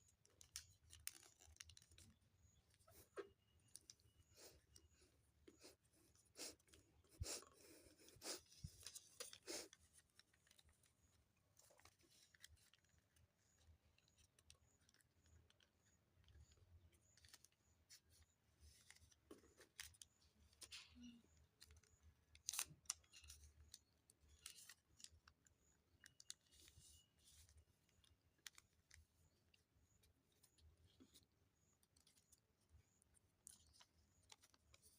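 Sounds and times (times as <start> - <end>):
paper rustling and clicking: 0.1 - 4.5, 7.4 - 34.9
scissors snipping paper: 22.4 - 25.2.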